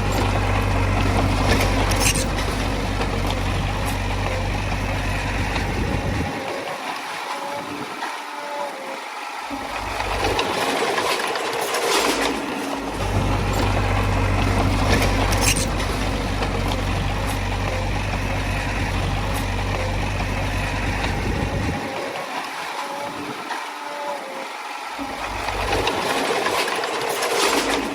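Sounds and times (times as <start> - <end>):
bulldozer diesel engine rumbling: 0.0 - 6.5, 9.6 - 22.2, 25.0 - 27.9.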